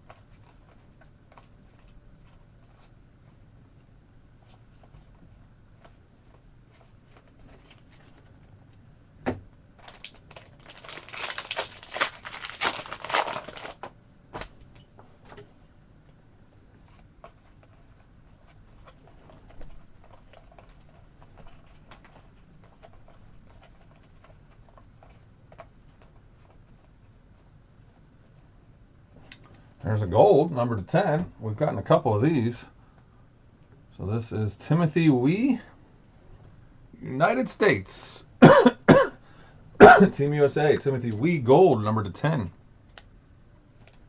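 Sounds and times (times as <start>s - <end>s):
foil wrapper tearing and crinkling: 9.8s - 13.8s
cards clicking and rustling: 9.8s - 14.8s.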